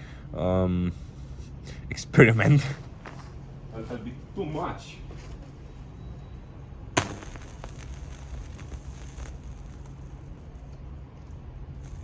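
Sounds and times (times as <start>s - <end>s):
low transformer hum: 5.6s - 12.0s
faint electrical crackling: 6.8s - 12.0s
high-voltage snap: 7.0s - 10.8s, 11.8s - 12.0s.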